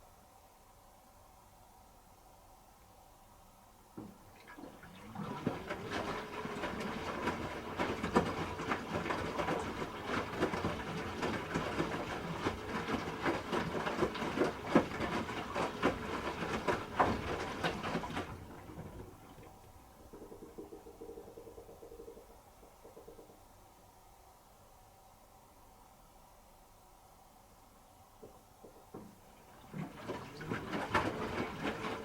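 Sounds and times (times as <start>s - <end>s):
faint steady hum: 0.0s - 32.0s
washing machine laundry sloshing: 4.0s - 22.0s, 28.8s - 32.0s.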